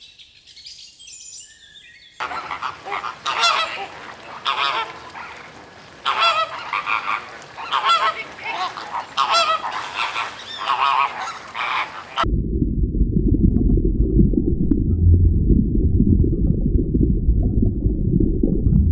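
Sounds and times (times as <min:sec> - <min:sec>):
flamingos honking: 0:02.2 - 0:12.3
low rumble: 0:12.2 - 0:18.9.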